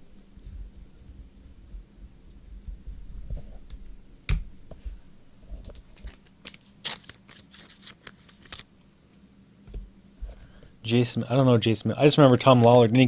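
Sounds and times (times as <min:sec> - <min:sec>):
cards clicking and rustling: 0:05.6 - 0:08.7.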